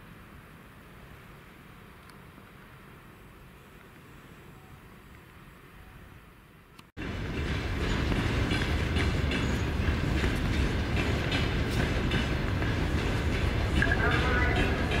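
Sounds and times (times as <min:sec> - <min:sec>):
freight train rumbling past: 0:07.0 - 0:15.0.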